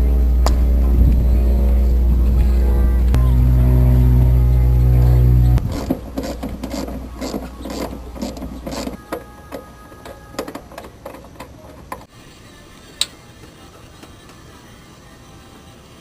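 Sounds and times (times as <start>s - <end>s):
low hum: 0.0s - 6.4s.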